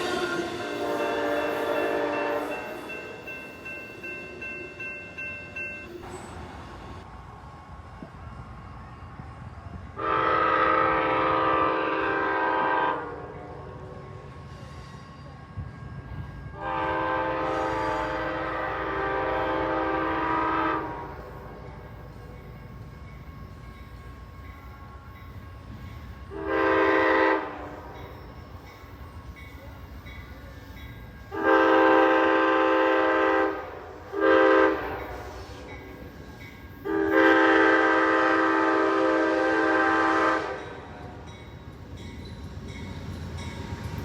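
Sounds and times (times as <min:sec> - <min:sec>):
locomotive air horn blasts: 0:00.0 - 0:02.9, 0:10.0 - 0:13.9, 0:16.6 - 0:21.3, 0:26.3 - 0:28.0, 0:31.3 - 0:35.7, 0:36.8 - 0:41.2
train rumbling past: 0:00.0 - 0:44.0.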